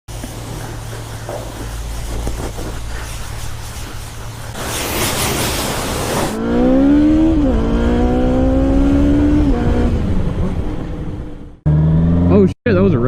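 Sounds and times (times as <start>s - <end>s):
vehicle engine accelerating: 4.4s - 12.6s.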